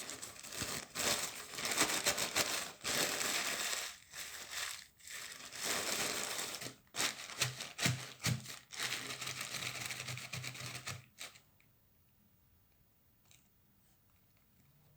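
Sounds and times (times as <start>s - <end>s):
plastic crinkling and crackling: 0.0s - 11.4s.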